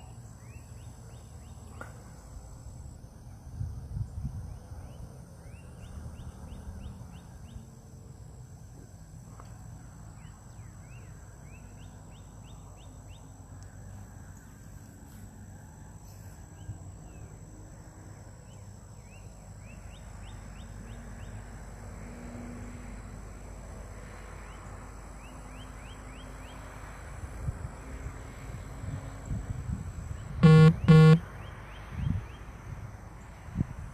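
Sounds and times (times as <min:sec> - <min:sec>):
wind rumble on microphone: 0:03.3 - 0:05.2, 0:27.3 - 0:30.4, 0:31.9 - 0:33.9
bird chirping: 0:30.4 - 0:31.2
high-pitched whine: 0:30.4 - 0:31.2.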